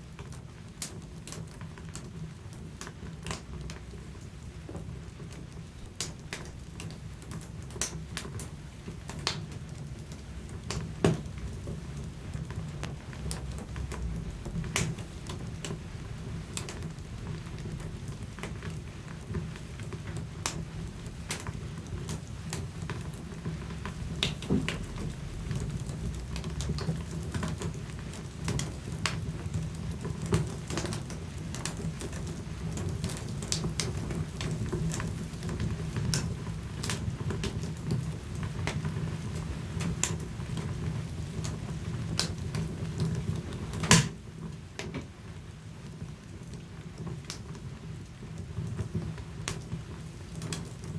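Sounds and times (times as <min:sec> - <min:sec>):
low rumble of flames: 0:00.0 - 0:50.9
wood fire crackling: 0:00.0 - 0:50.9
sharp pops of fire: 0:05.2 - 0:35.1, 0:41.3 - 0:44.2.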